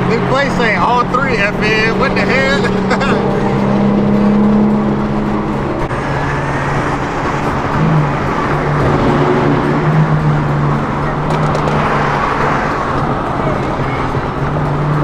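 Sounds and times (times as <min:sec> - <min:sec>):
car engines droning: 0:00.0 - 0:15.0
road noise: 0:00.0 - 0:15.0.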